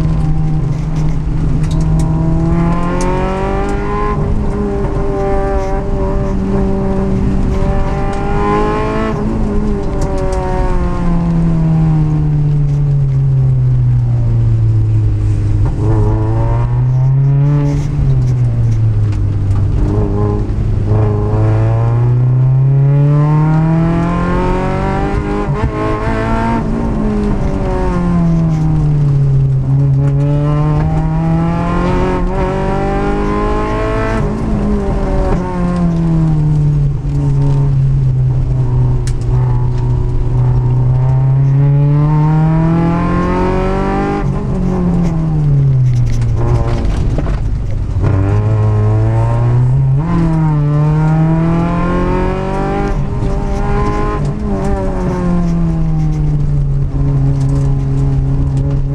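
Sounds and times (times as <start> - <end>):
car engine revving hard: 0.0 - 11.3, 19.7 - 28.9, 29.5 - 36.4, 39.8 - 45.4, 46.4 - 58.9.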